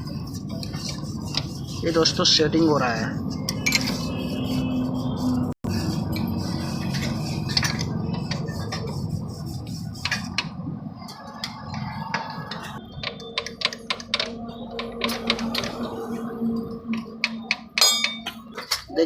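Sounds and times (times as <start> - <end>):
metal tools clinking: 3.4 - 4.1, 17.3 - 19.0.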